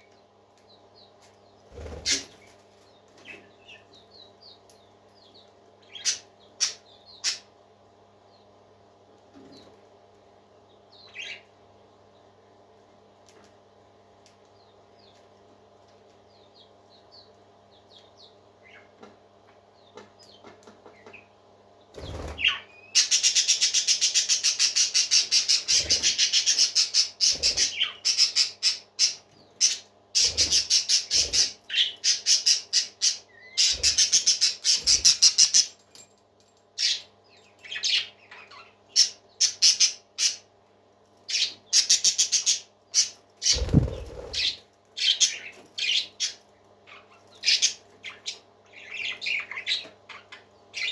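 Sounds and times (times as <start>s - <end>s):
parakeets chirping and chattering: 0.8s - 7.5s, 11.0s - 11.5s, 21.9s - 36.0s, 36.8s - 40.5s, 41.2s - 50.9s
steady low hum: 43.3s - 47.4s.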